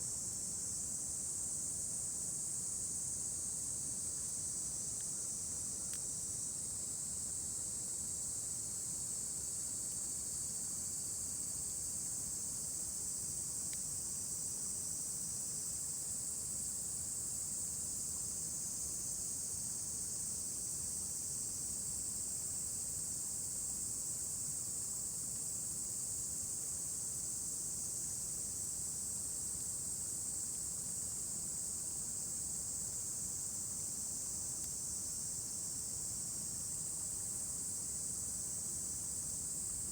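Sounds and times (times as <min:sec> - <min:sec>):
faint ticks: 0:05.8 - 0:06.1, 0:13.6 - 0:13.9.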